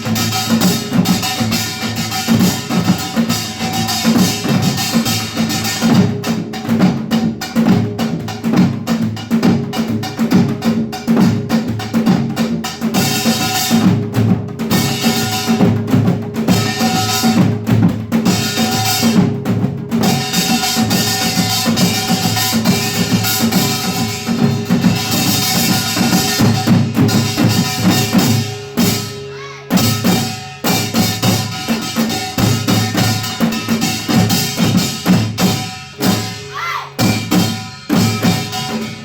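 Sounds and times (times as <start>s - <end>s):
drums beating fast rhythm: 0.0s - 39.0s.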